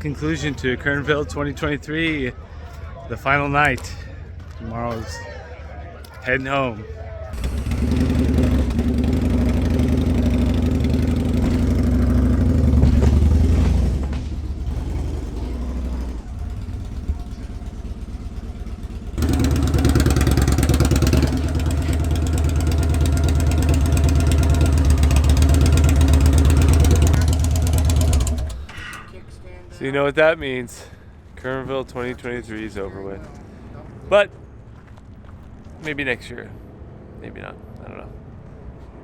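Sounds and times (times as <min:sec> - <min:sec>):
motorcycle engine running: 0:07.4 - 0:28.8.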